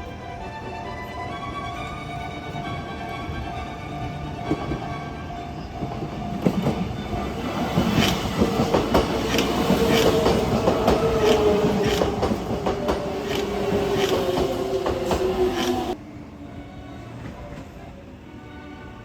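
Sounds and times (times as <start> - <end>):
train whine: 0.0 - 19.0
wheels clicking over rail joints: 5.8 - 16.0.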